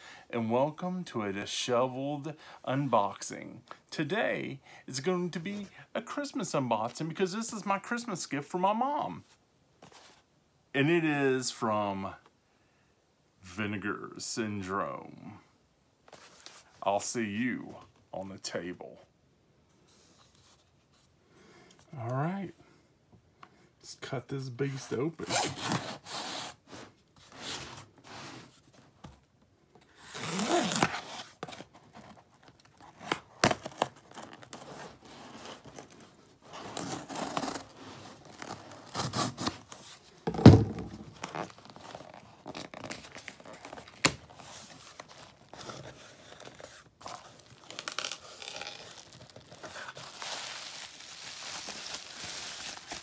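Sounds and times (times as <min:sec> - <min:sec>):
cardboard scraping: 0:29.9 - 0:50.2
packing tape ripping: 0:30.0 - 0:36.0, 0:36.6 - 0:53.0
packing material crinkling: 0:30.1 - 0:53.0.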